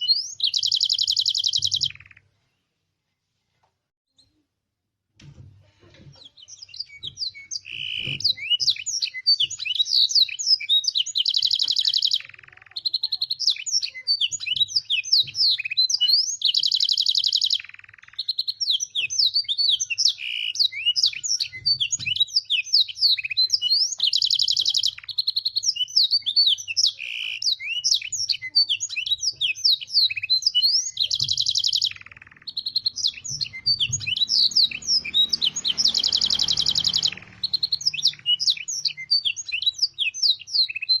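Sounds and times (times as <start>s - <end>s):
canary singing: 0.0s - 2.3s, 6.2s - 41.0s.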